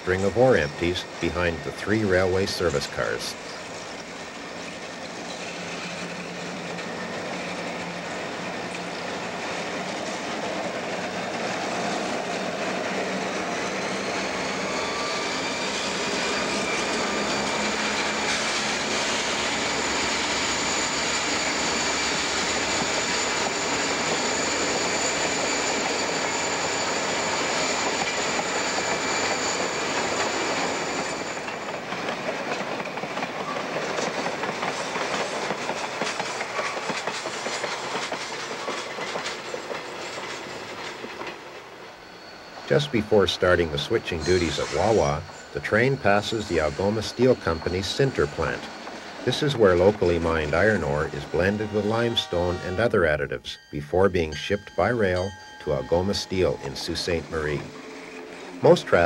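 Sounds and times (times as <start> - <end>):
wheels rattling on rails: 0.0 - 52.8
diesel locomotives passing: 0.0 - 59.0
high-pitched wheel squeal: 12.9 - 31.8, 41.9 - 53.8.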